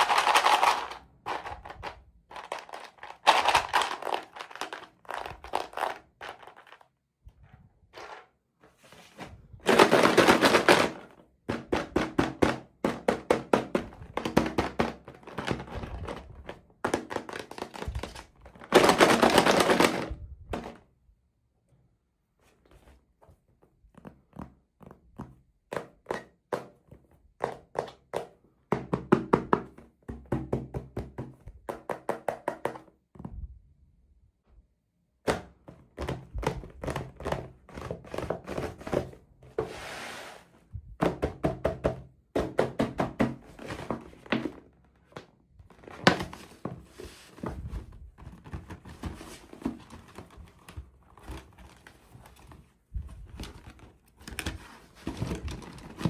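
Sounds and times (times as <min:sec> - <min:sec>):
plastic toy pieces clicking: 0:00.0 - 0:06.7.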